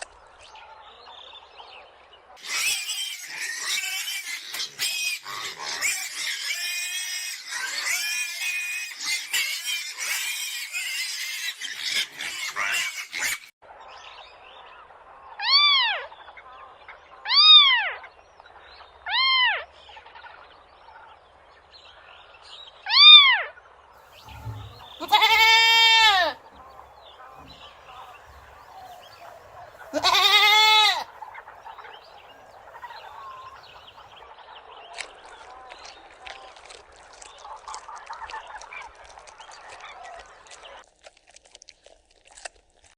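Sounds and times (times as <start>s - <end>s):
livestock bleating: 24.2s - 26.5s, 27.4s - 31.1s.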